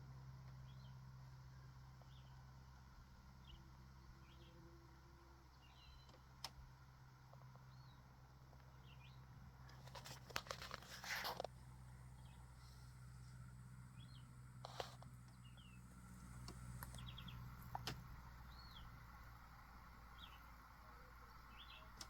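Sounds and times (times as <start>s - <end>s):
steady low hum: 0.0s - 22.0s
rustling crackle: 9.7s - 11.6s
nestlings chirping: 13.9s - 22.0s.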